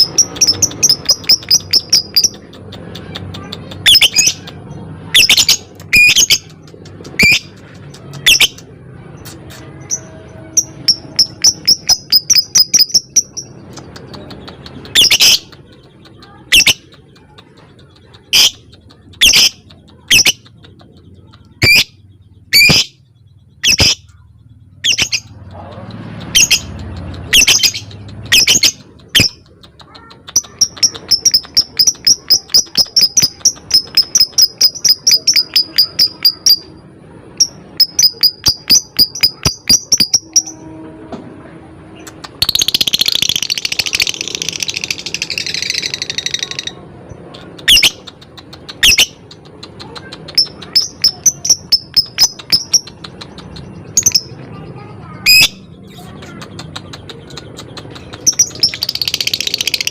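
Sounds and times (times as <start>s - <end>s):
lovebird chattering: 0.0s - 40.6s, 42.0s - 59.9s
lovebird shrill chirping: 3.8s - 4.4s, 5.1s - 6.5s, 9.2s - 13.6s, 21.6s - 23.0s, 23.6s - 24.1s, 24.8s - 25.3s, 26.3s - 29.4s, 37.4s - 40.6s.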